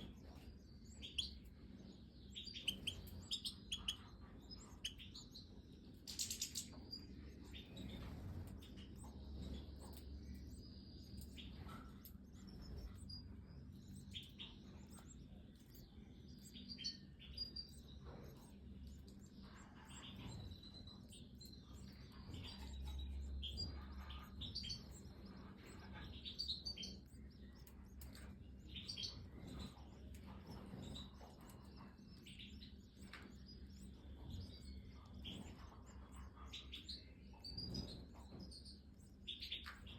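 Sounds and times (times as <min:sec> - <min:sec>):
birds chirping: 0:00.0 - 0:39.9
faint low hum: 0:00.0 - 0:39.9.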